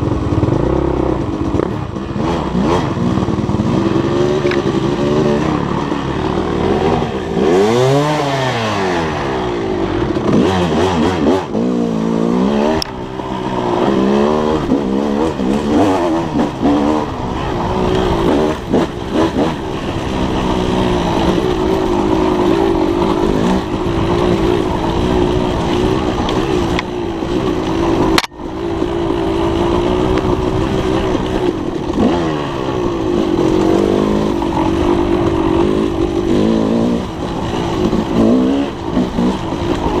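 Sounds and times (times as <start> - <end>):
dirt bike engine revving: 0.0 - 40.0
sharp click: 28.2 - 28.4.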